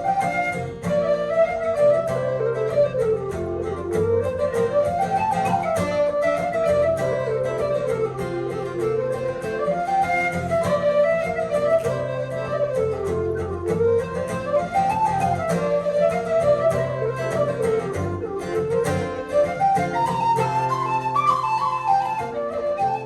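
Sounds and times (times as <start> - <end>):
plucked strings: 0.0 - 23.0
wind instrument melody: 0.0 - 23.0.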